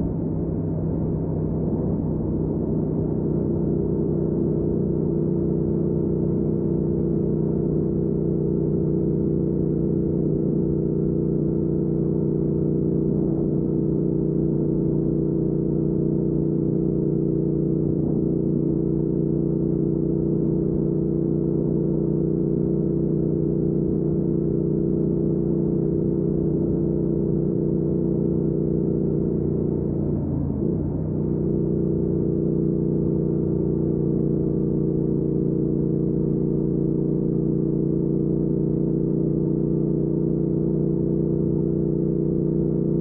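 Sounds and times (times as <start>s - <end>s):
motorcycle engine cruising: 0.0s - 43.0s.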